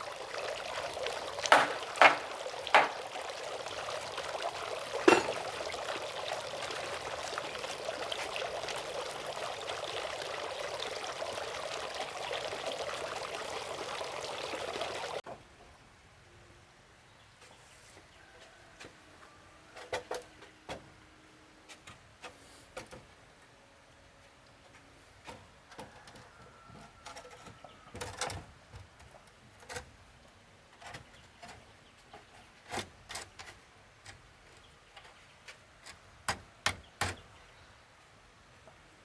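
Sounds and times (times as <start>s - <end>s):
sharp knocks and clicks: 1.5s - 3.0s.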